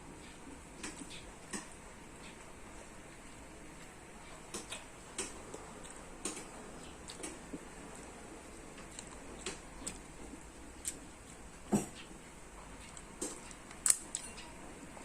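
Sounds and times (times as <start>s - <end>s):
eating clicks and taps: 0.8s - 1.8s, 4.5s - 5.6s, 6.2s - 7.6s.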